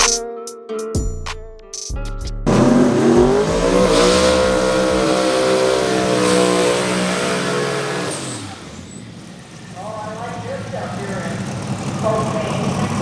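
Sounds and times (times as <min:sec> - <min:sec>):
music: 0:00.0 - 0:05.2
drag car engine at full throttle: 0:02.5 - 0:13.0.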